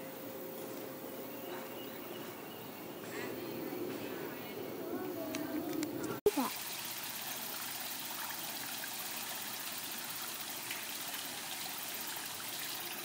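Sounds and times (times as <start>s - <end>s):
water trickling: 6.3s - 13.0s.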